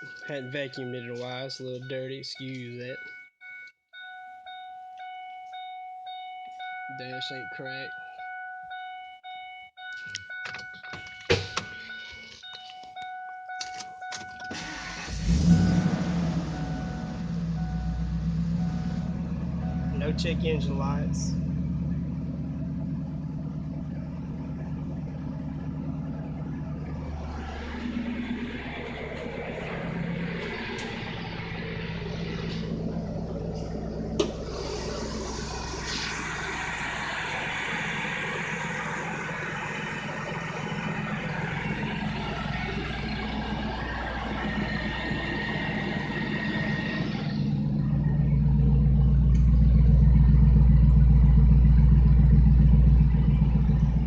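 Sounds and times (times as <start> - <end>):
dashboard warning chime: 0.0 - 21.3
car engine idling: 4.4 - 54.0
clicks: 9.8 - 14.6.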